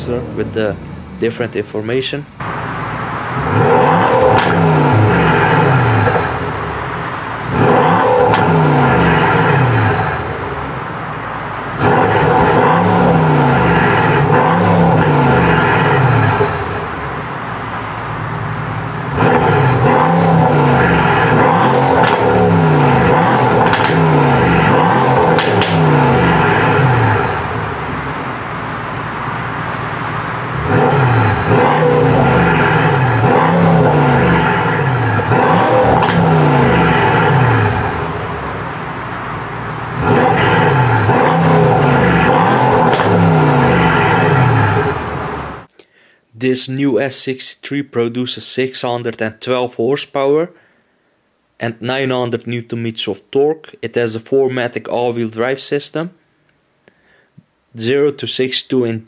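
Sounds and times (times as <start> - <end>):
exhaust cracks: 0.0 - 45.9
car engine revving hard: 2.4 - 45.7.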